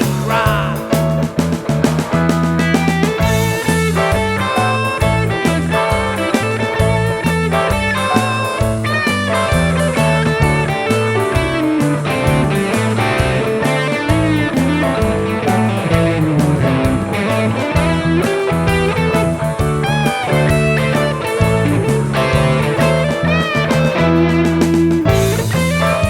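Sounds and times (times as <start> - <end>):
blues-rock band playing: 0.0 - 26.0
electric guitar bending notes: 0.0 - 26.0.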